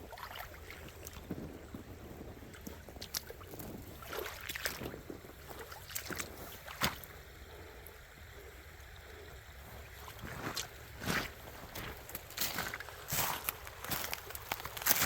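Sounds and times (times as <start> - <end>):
wind rumble on microphone: 0.0 - 15.0
sharp footsteps: 10.2 - 15.0.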